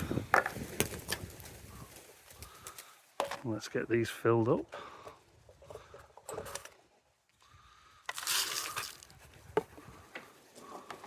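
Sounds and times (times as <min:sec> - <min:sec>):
seed scraping and clicking: 0:08.0 - 0:09.2
seed pouring rush: 0:08.1 - 0:09.1.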